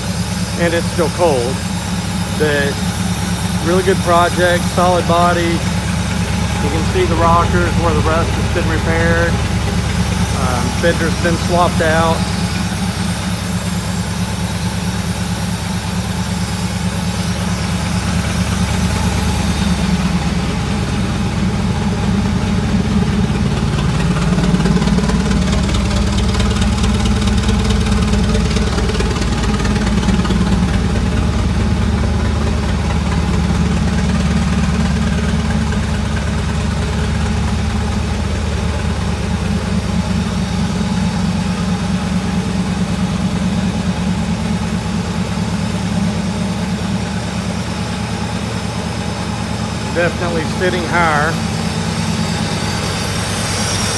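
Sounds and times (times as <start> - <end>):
loud engine idling: 0.0 - 53.9.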